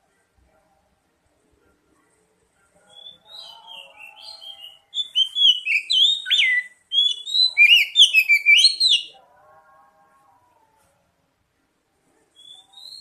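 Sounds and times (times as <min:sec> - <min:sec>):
bird whistled song: 0:02.9 - 0:09.1, 0:12.4 - 0:13.0.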